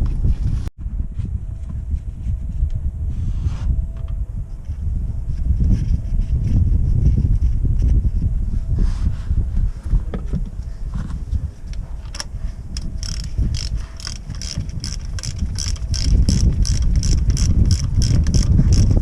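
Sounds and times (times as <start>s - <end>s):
low rumble: 0.0s - 19.0s
ratchet wrench clicking: 12.1s - 19.0s.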